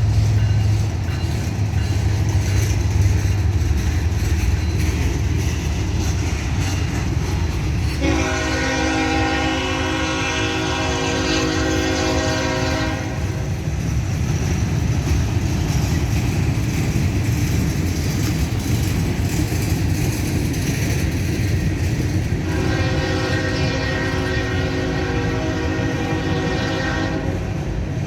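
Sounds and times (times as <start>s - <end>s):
slow train rumbling: 0.0s - 28.0s
locomotive air horn chord: 8.0s - 13.4s, 22.5s - 27.5s.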